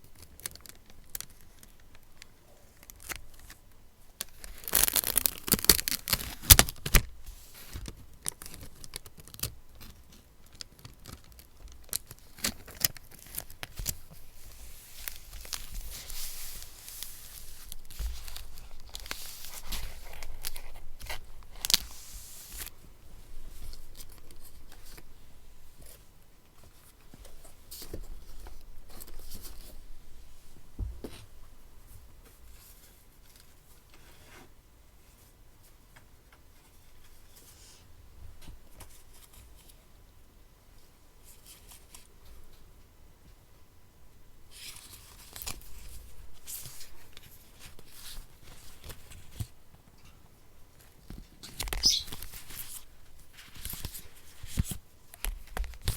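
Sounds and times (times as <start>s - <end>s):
paper tearing and crinkling: 4.4s - 7.0s.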